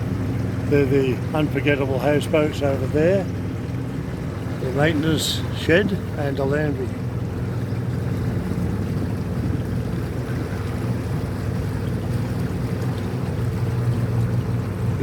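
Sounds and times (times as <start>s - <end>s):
boat engine droning: 0.0s - 15.0s
water noise: 0.0s - 15.0s.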